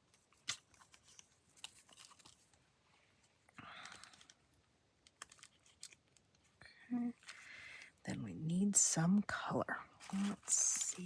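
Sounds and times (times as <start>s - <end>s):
paper rustling: 0.1s - 2.6s, 5.0s - 6.5s, 10.0s - 11.0s.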